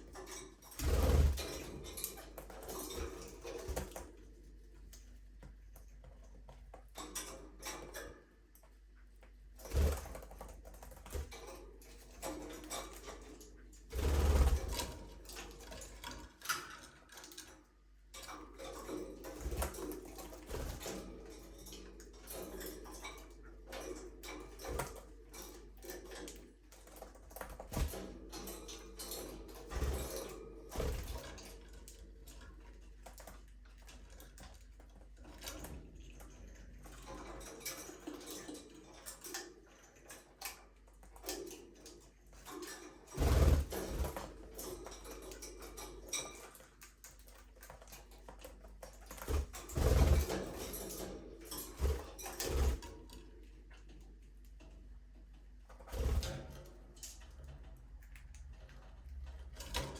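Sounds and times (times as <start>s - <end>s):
small clicks and taps: 57.0s - 59.9s.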